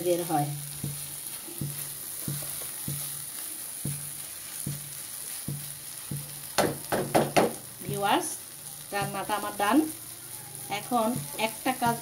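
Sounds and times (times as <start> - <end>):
food sizzling in frying pan: 0.0 - 12.0
spatula stirring in pan: 0.0 - 12.0.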